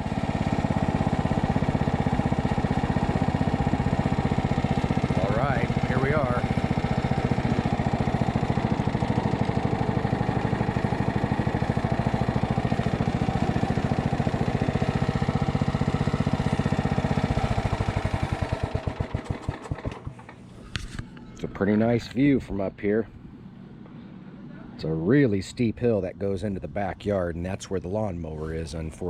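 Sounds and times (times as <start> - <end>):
riding lawn mower engine: 0.0 - 22.7.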